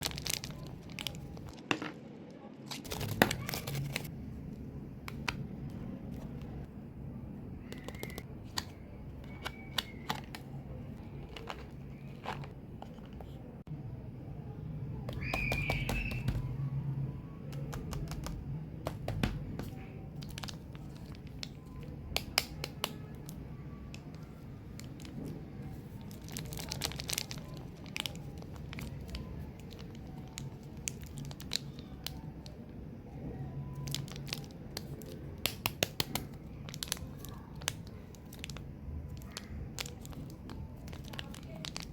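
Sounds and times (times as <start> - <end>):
wrappers crinkling and tearing: 0.0 - 1.6, 2.8 - 4.1, 24.1 - 32.6, 33.7 - 35.2, 36.0 - 41.9
clicks and taps: 17.5 - 19.8.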